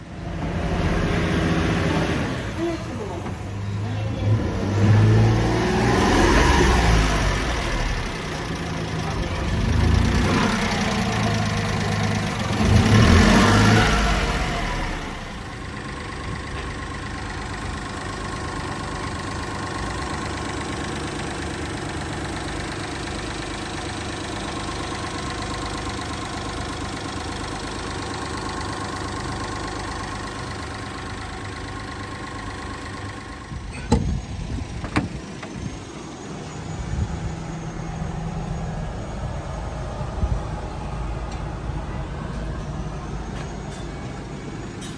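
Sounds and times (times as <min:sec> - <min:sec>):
small truck engine revving and idling: 0:00.0 - 0:44.9.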